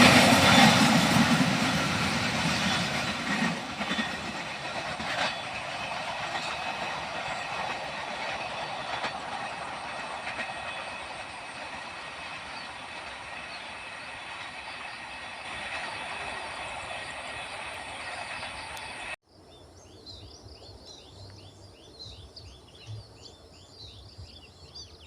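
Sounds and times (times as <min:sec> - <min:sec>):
train wheels clacking on rails: 0:00.0 - 0:19.2.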